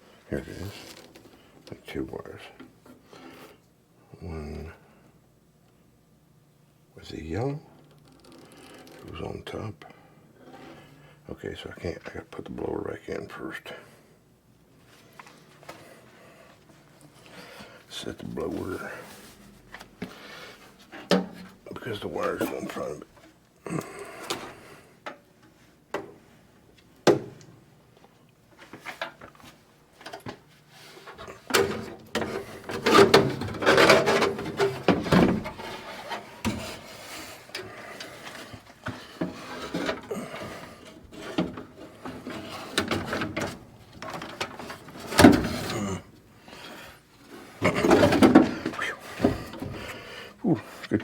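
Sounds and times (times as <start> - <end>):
sheet metal scraping and knocking: 31.5 - 45.9.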